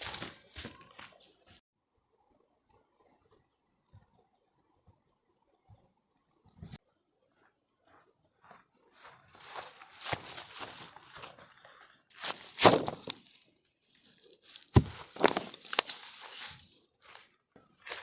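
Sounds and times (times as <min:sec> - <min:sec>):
dry material crunching and crinkling: 0:14.0 - 0:16.7.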